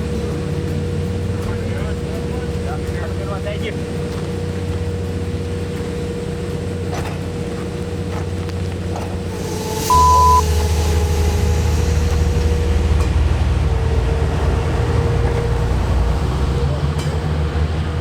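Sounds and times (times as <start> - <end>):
train rumbling: 0.0 - 18.0
brief high tone: 9.4 - 13.0.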